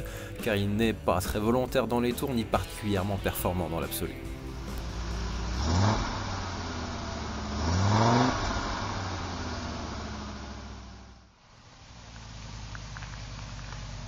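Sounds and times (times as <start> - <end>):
car engine revving: 4.1 - 14.0.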